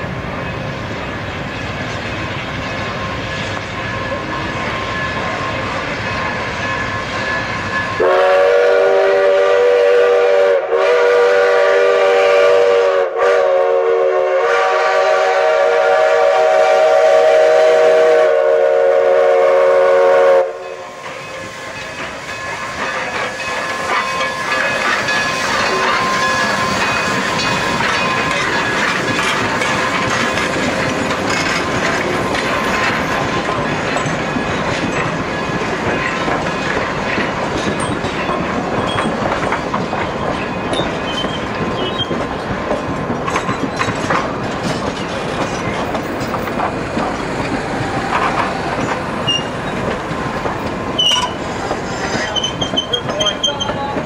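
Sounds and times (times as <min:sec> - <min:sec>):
train rumbling by: 0:00.0 - 0:54.0
wheels clicking over rail joints: 0:21.0 - 0:54.0
wheel squeals: 0:37.7 - 0:42.4, 0:47.9 - 0:50.0, 0:50.6 - 0:54.0.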